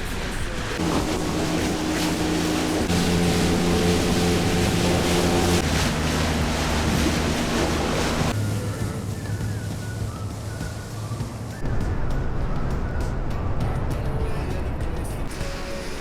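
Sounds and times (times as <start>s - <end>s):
motorboat engine running: 0.0s - 16.0s
water rushing past: 0.0s - 16.0s
wind: 0.0s - 16.0s.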